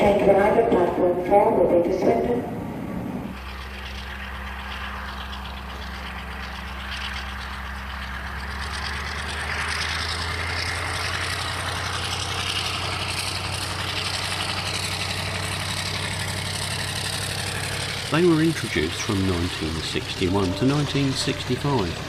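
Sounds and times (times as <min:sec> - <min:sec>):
diesel locomotive engine running: 0:00.0 - 0:22.0.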